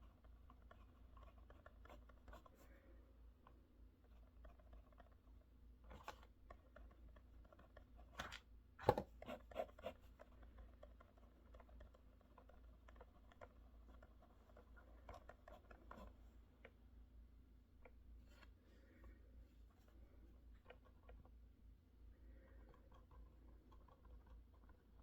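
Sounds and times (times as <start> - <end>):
faint scratching: 22.1 - 25.0.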